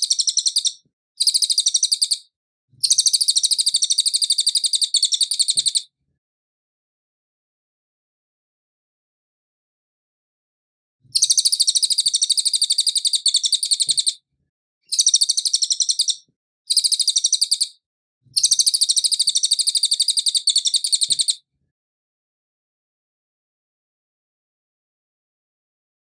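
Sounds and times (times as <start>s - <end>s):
songbird trilling: 0.0s - 2.2s, 2.8s - 5.8s, 11.2s - 14.2s, 14.9s - 17.7s, 18.4s - 21.4s.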